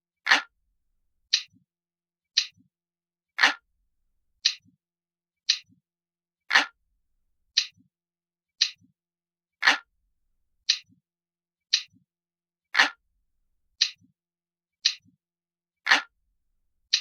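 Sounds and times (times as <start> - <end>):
clock ticking: 1.3 - 1.6, 11.7 - 12.0.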